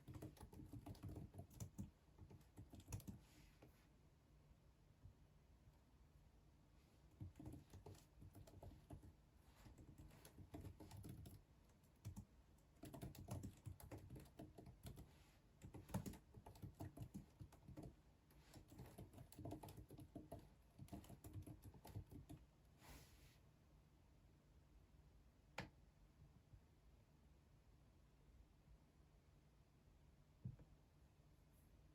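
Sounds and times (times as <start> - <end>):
faint keyboard typing: 0.0 - 3.8, 7.1 - 22.6.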